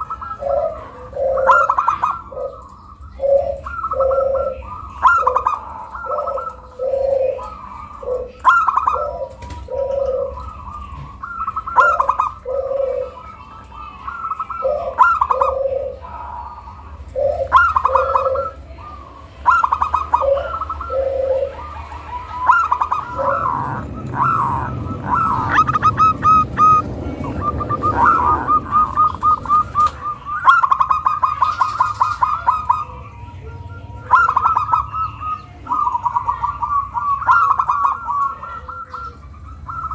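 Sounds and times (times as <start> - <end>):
dove cooing: 0.0 - 39.9
low rushing noise: 21.6 - 30.4.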